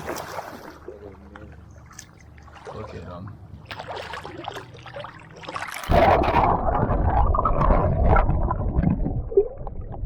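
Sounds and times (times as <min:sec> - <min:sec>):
water sloshing and gurgling: 0:00.0 - 0:10.0.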